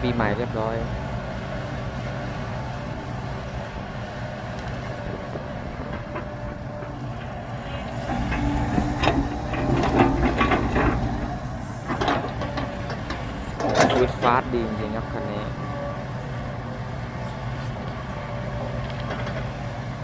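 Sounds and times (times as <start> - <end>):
heavy diesel machinery running: 0.0 - 20.0
metal clanks and knocks: 4.5 - 15.8, 17.6 - 19.6
machine whine: 7.3 - 15.7.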